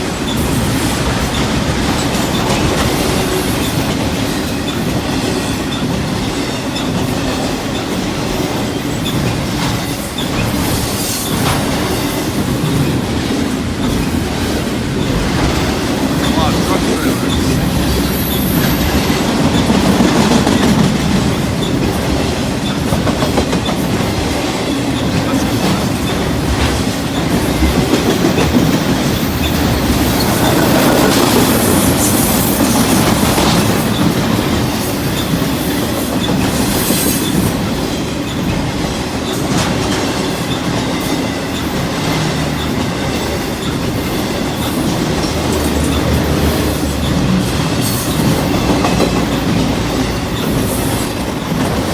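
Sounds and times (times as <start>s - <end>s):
freight train wheels rumbling on rails: 0.0s - 51.9s.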